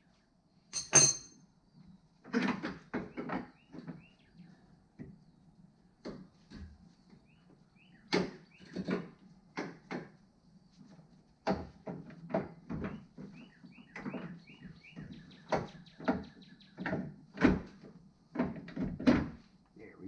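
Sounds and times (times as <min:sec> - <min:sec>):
hand tools clanking on steel: 0:00.8 - 0:01.3
faint bird chirping: 0:03.0 - 0:05.9, 0:06.8 - 0:08.8, 0:12.8 - 0:16.9.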